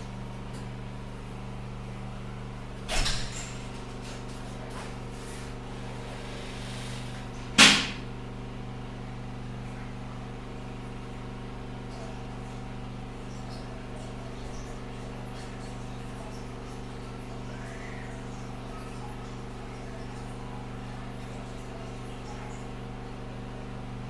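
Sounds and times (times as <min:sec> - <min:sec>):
background hum: 0:00.0 - 0:23.9
sharp knocks: 0:07.6 - 0:08.0.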